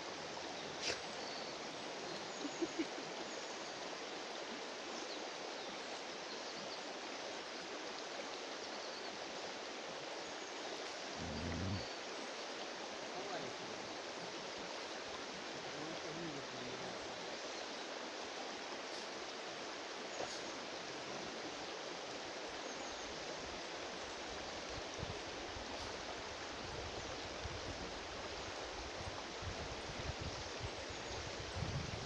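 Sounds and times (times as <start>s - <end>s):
river water rushing: 9.2s - 29.3s.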